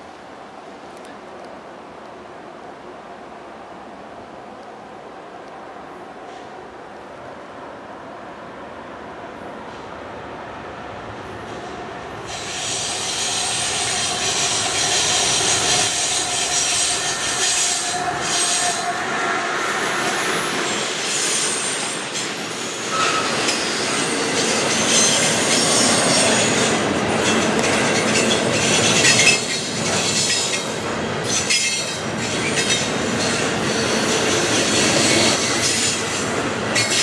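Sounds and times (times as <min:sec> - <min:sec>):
diesel locomotives passing: 0:00.0 - 0:37.0
train wheel squeal: 0:11.3 - 0:37.0.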